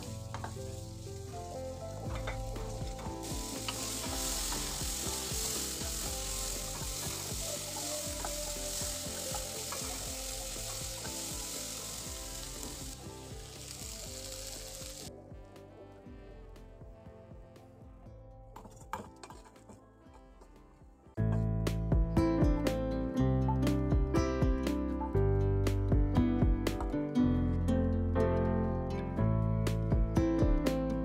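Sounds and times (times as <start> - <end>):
vegetables sizzling in hot oil: 0.0 - 15.1.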